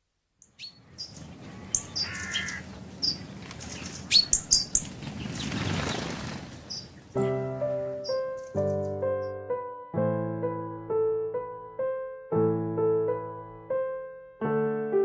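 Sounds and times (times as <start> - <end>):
birds chirping and calling: 0.4 - 7.4, 8.0 - 9.4.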